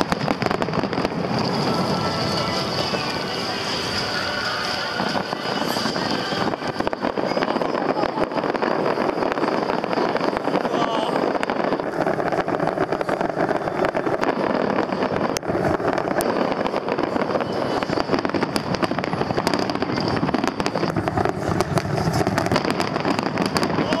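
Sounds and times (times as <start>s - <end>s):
fireworks crackling and popping: 0.0s - 24.0s
sharp firework bang: 0.0s - 24.0s
rumble of bursting shells: 8.0s - 24.0s.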